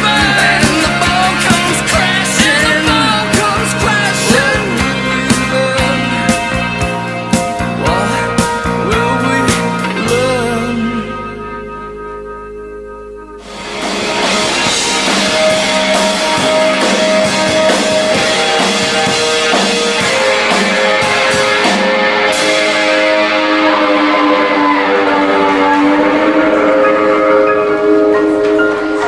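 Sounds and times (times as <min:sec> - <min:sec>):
rock band playing: 0:00.0 - 0:29.0
cymbal crashes: 0:13.4 - 0:29.0.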